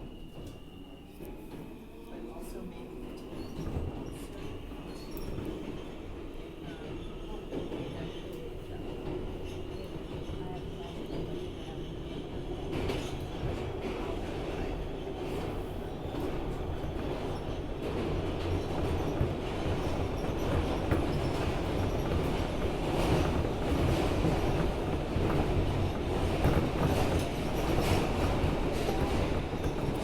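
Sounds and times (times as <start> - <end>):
subway train rumbling: 0.0 - 30.0.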